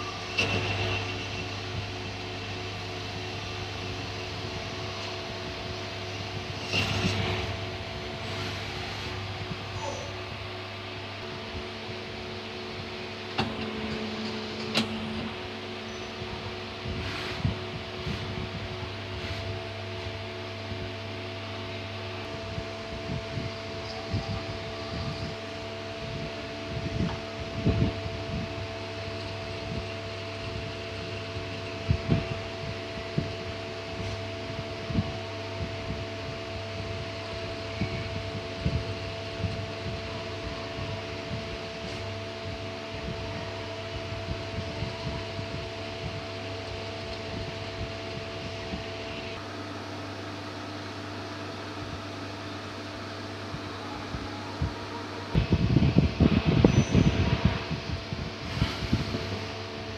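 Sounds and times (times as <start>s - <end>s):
lathe machine hum: 0.0s - 22.9s
loud low rumbling: 0.0s - 49.6s, 51.1s - 59.9s
lathe mechanical hum: 0.0s - 59.9s.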